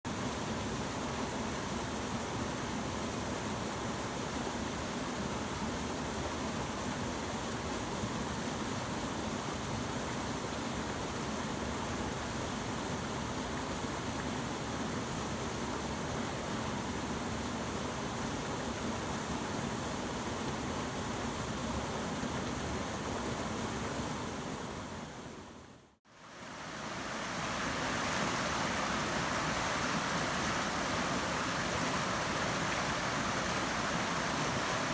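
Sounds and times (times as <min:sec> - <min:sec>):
waterfall rushing and splashing: 0:26.1 - 0:34.9.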